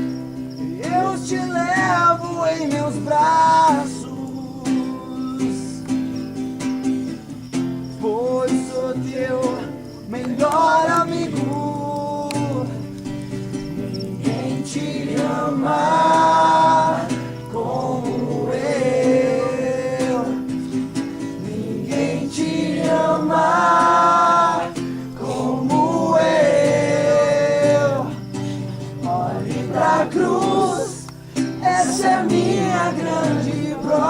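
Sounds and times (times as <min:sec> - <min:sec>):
voices singing worship song: 0:00.0 - 0:34.0.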